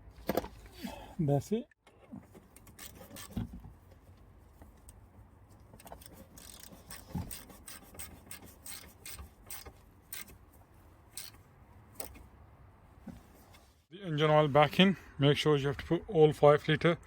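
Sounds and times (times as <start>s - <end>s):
tools and parts clicking: 2.4s - 3.4s, 5.8s - 10.4s, 11.1s - 11.4s.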